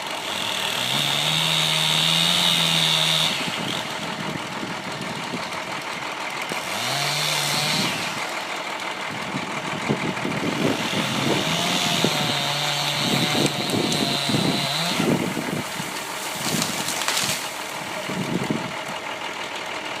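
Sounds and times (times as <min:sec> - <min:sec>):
chainsaw revving and cutting: 0:00.0 - 0:19.2
sharp knocks and cracks: 0:12.6 - 0:15.1, 0:15.8 - 0:17.8.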